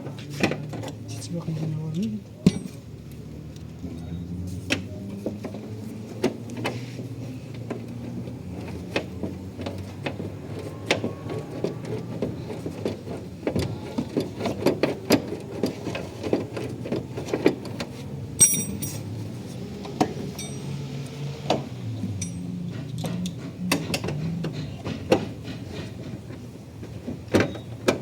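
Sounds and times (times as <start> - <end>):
objects knocking and clinking: 18.4 - 19.1, 20.4 - 20.8.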